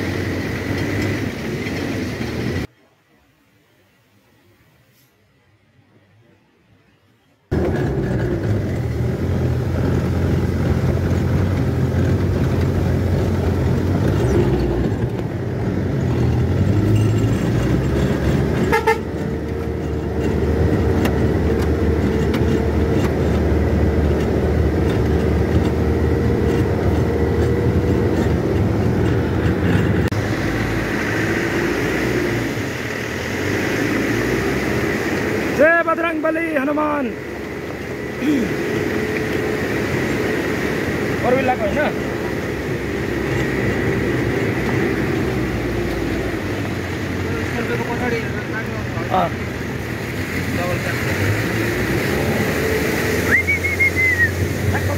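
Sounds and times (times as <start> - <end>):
truck engine droning: 7.5 - 54.9.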